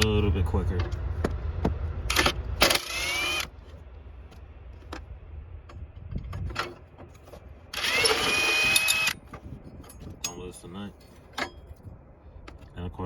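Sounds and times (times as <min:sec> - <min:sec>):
impact tool motor whine: 0:02.1 - 0:03.6, 0:07.7 - 0:09.3.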